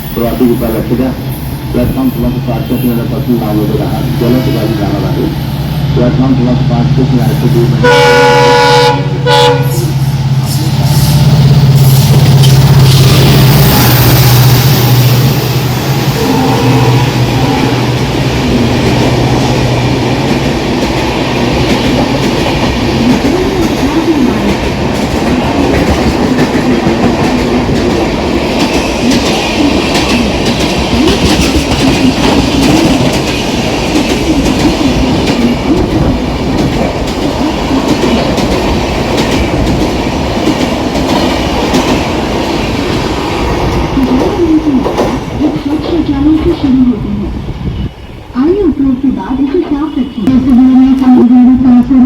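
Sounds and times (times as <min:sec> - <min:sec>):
locomotive engine tone: 0:01.8 - 0:20.0
train wheels clattering over rails: 0:17.2 - 0:46.6.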